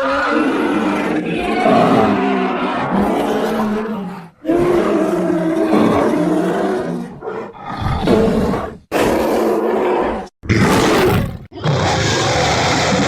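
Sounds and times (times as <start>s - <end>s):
bear roaring and growling: 0.0s - 13.0s.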